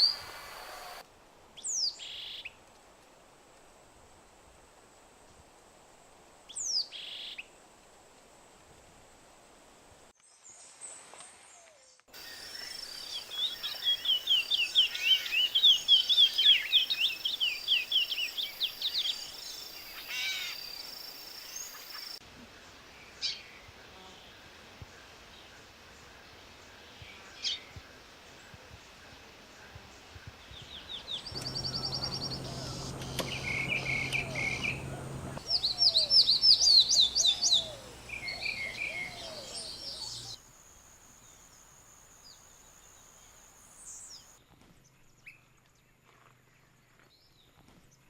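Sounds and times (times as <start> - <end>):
fast bird song: 12.2 - 22.2, 30.0 - 40.4
down-slurred bird call: 31.4 - 40.4.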